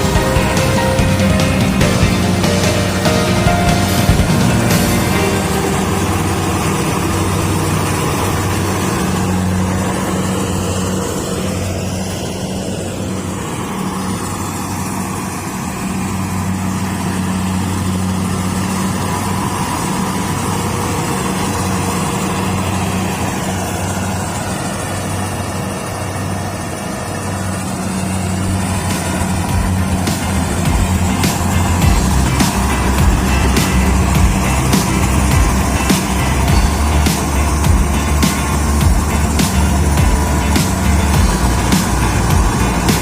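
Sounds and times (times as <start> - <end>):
combine harvester diesel engine: 0.0 - 43.0.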